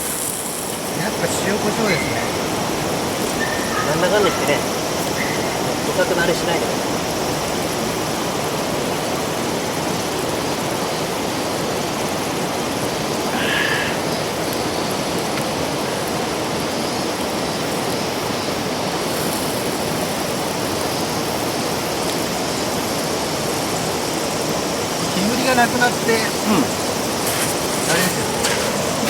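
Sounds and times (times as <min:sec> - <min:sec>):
river rushing: 0:00.7 - 0:18.0, 0:23.1 - 0:29.0.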